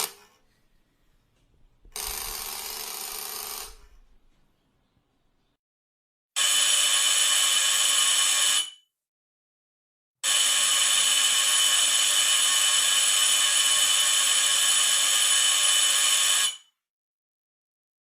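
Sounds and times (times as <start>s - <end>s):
electric doorbell buzzing: 1.9s - 3.9s, 6.4s - 8.7s, 10.2s - 16.7s.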